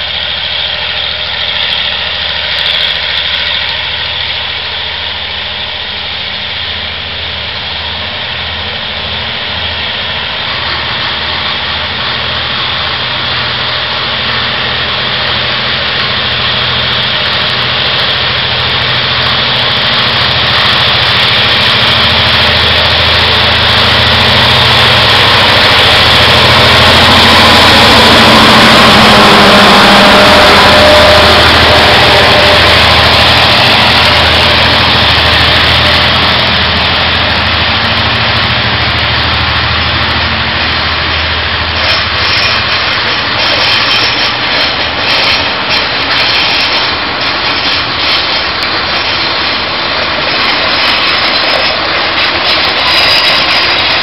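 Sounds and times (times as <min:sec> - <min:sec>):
diesel locomotive engine running: 0:00.0 - 0:54.0
freight wagon wheels clattering on rails: 0:41.7 - 0:54.0.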